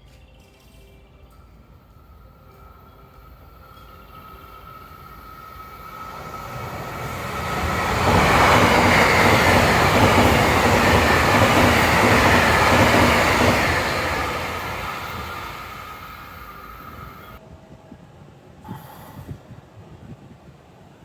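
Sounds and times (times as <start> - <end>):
train wheels rolling on rails: 1.3 - 17.4.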